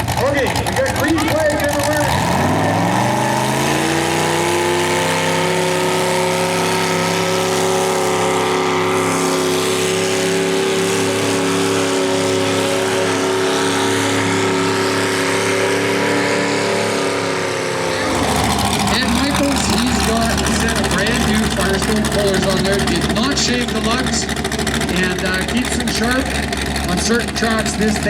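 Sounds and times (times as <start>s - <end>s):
tractor engine at high revs: 0.0s - 28.0s.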